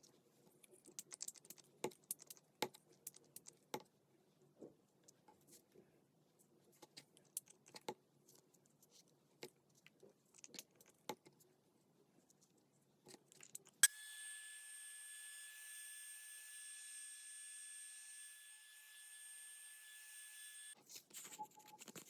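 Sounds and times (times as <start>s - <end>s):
electric device whining: 13.8s - 20.8s
paper and craft tools rustling: 20.8s - 22.0s.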